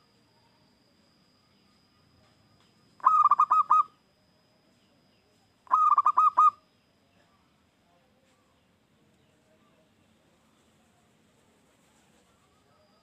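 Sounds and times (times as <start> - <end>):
dove cooing: 3.0 - 3.9, 5.7 - 6.6.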